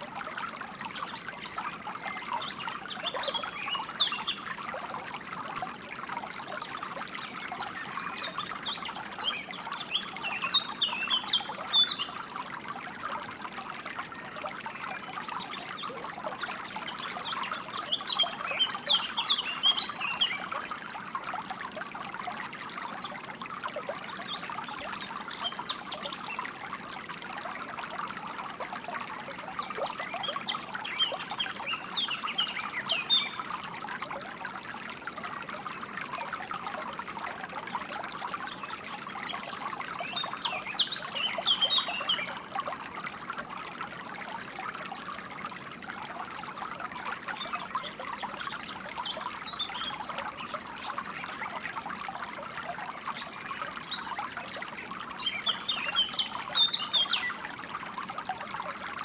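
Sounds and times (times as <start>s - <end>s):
water trickling and splashing: 0.0s - 59.0s
small birds chirping: 38.3s - 42.4s.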